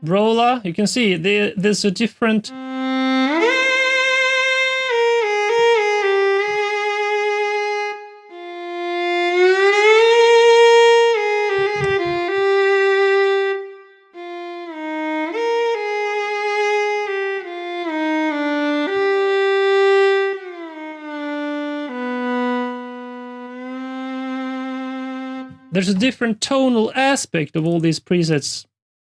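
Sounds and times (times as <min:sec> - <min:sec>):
viola playing slow legato melody: 0:02.5 - 0:25.7.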